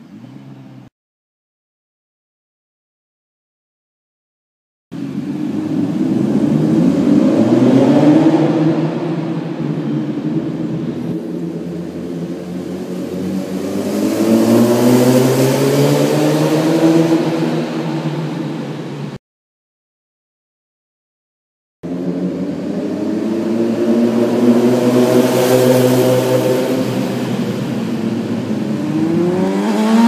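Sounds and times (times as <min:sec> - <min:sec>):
motorcycle engine revving: 0:05.0 - 0:19.0, 0:21.8 - 0:30.0.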